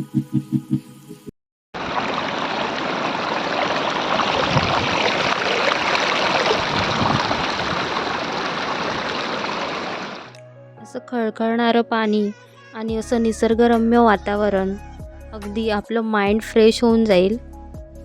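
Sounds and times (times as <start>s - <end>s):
stream water rushing: 1.8s - 10.3s.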